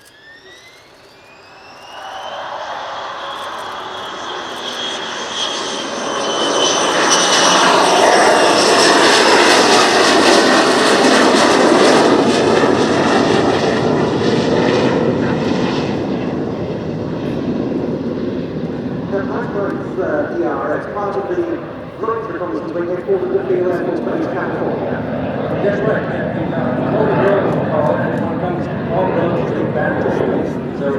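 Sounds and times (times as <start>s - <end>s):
jet engine roar: 0.0s - 30.9s
jet engine whine: 0.0s - 30.9s.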